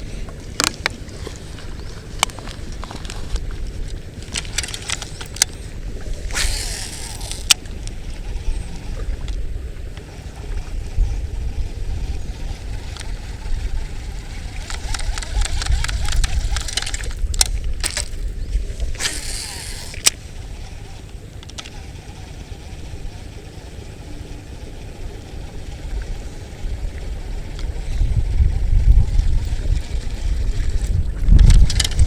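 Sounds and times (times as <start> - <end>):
wind buffeting microphone: 0.0 - 32.0
sharp clicks: 4.2 - 10.2, 14.3 - 18.3, 19.0 - 22.8
rustling hiss: 10.0 - 28.0.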